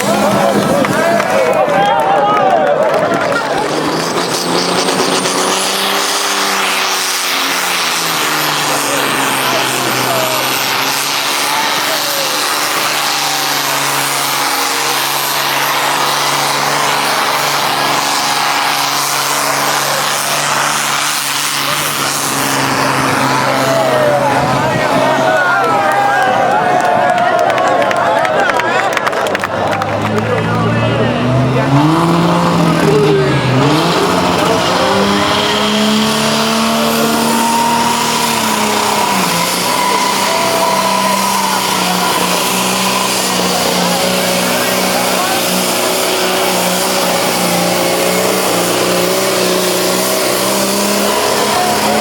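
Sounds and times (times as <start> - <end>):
dense rushing noise: 0.0 - 52.0
tractor engine running loud: 0.0 - 52.0.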